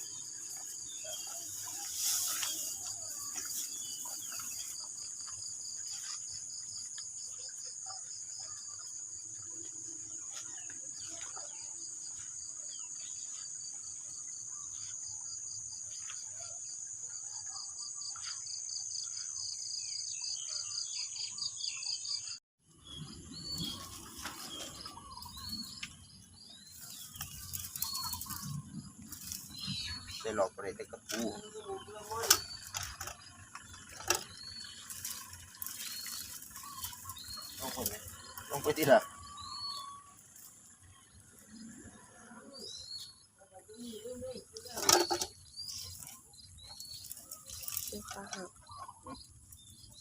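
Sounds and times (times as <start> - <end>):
insects trilling: 0.0 - 22.3, 23.3 - 50.0
birds chirping: 0.0 - 50.0
pulsing insect chirp: 23.3 - 50.0.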